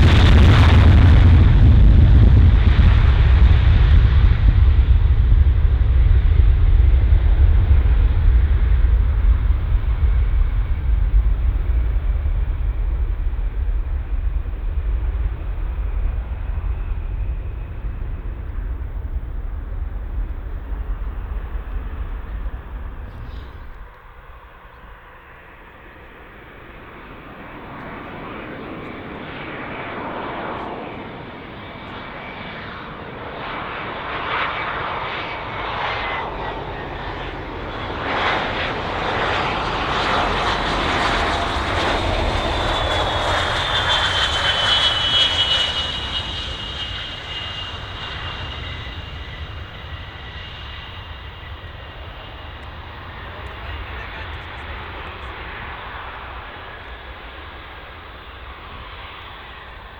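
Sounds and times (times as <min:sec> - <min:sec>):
deep low rumble: 0:00.0 - 0:30.6, 0:33.2 - 0:59.9
high engine whine: 0:00.0 - 0:59.9
jet airliner engines: 0:00.0 - 0:59.9.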